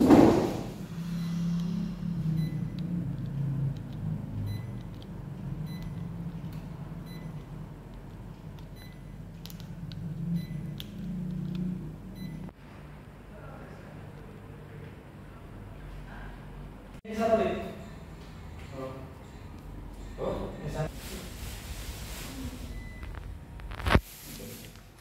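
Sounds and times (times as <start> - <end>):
air conditioner humming: 0.0 - 25.0.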